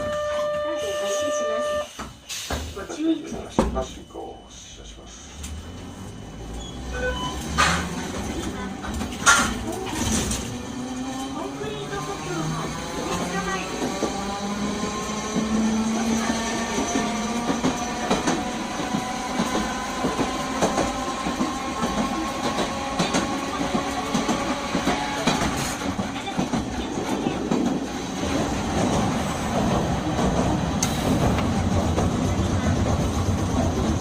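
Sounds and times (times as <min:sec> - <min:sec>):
low rumble of tram: 0:00.0 - 0:34.0
tram motor whine: 0:05.0 - 0:34.0
clicks and rattles from wheels: 0:08.8 - 0:10.5.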